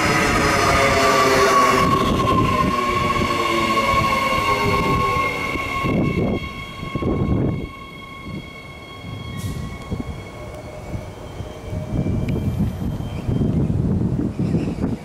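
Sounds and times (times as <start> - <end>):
electric train passing: 0.0 - 15.0.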